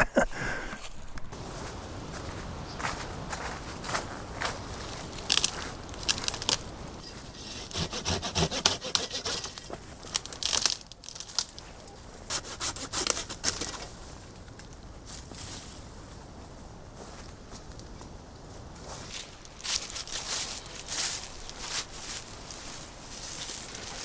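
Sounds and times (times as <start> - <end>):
hand saw cutting wood: 6.0 - 10.8, 12.3 - 13.9.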